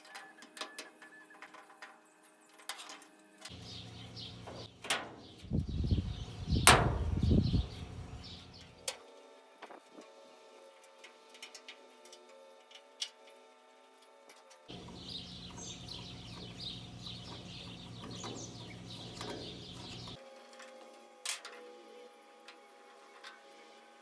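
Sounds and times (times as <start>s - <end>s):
metal parts clicking and clanking: 0.0s - 3.7s, 14.0s - 20.2s
low rumbling handling noise: 3.6s - 8.6s, 14.7s - 20.2s.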